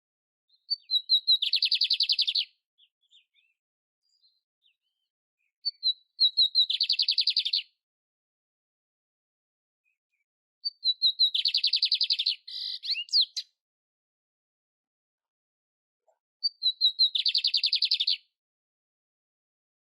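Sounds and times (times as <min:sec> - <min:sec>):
songbird singing with buzzy trill: 0:00.5 - 0:07.8, 0:09.8 - 0:13.6, 0:16.4 - 0:18.4.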